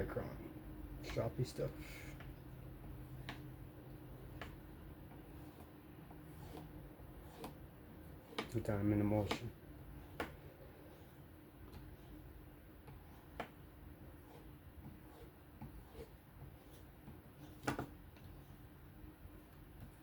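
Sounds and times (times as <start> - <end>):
faint steady hum: 0.0 - 20.0
knife stropping on a strop: 5.3 - 7.6.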